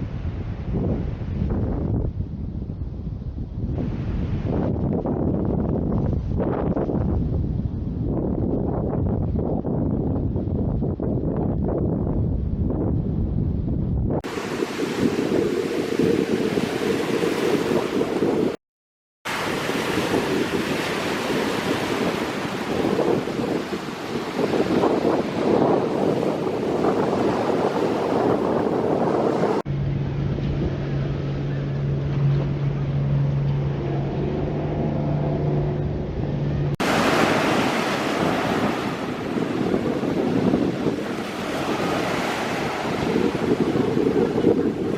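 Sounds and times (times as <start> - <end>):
wind buffeting microphone: 0.0 - 18.6, 19.3 - 44.9
surf washing on beach: 14.2 - 18.6, 19.3 - 29.7, 36.7 - 44.9
boat engine droning: 19.3 - 44.9.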